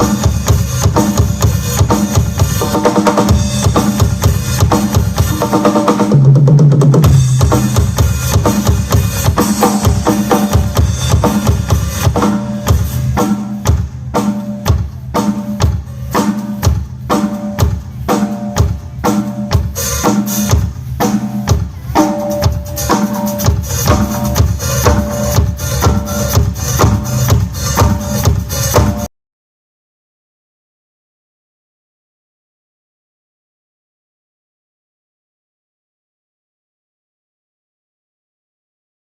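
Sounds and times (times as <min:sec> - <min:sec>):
drum kit through sound system: 0:00.0 - 0:29.1.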